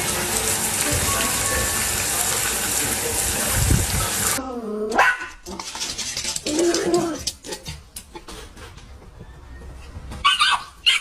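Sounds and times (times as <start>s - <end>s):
running water gushing: 0.0s - 4.4s.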